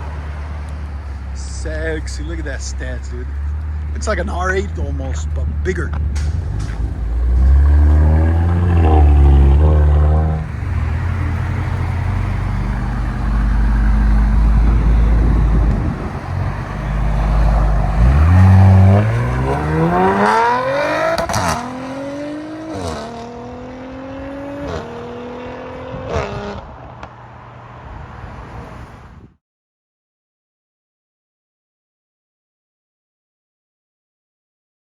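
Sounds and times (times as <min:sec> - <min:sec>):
car engine rumbling and accelerating: 0:00.0 - 0:29.4.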